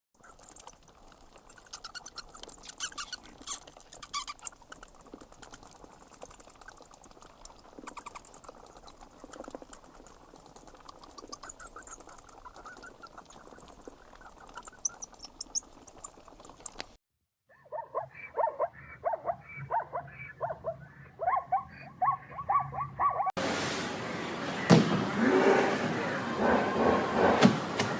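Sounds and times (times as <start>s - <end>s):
bats squeaking: 0.2s - 17.0s.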